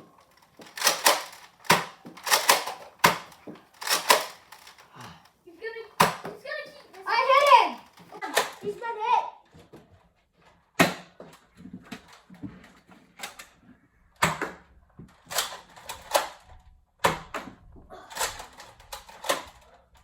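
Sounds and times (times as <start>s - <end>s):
darts striking surfaces: 10.8s - 11.3s.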